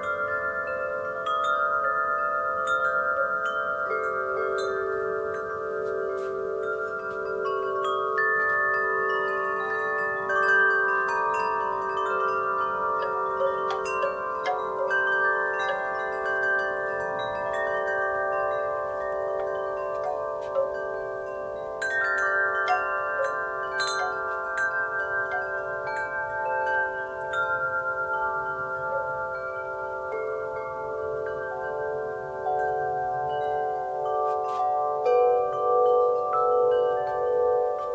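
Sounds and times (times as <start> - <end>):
wind chimes ringing: 0.0 - 37.9.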